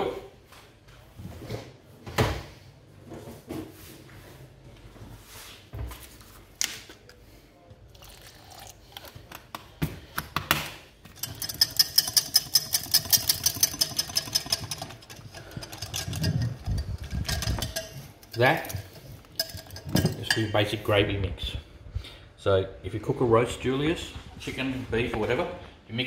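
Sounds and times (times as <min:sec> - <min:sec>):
utensil beating against bowl: 0:11.1 - 0:20.4
clinks and knocks: 0:11.1 - 0:20.6.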